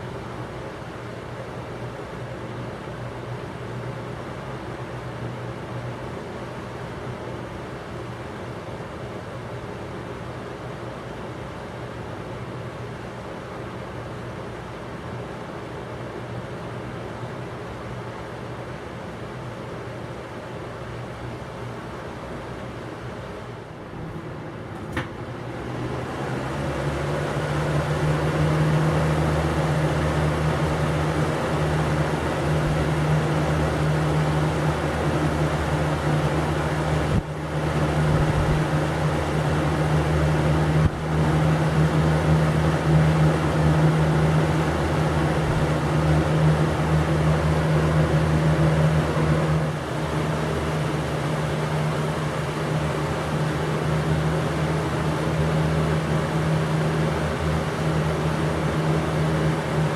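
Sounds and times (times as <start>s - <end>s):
fan rushing air: 0.0s - 59.9s
fan switch click: 24.7s - 25.2s.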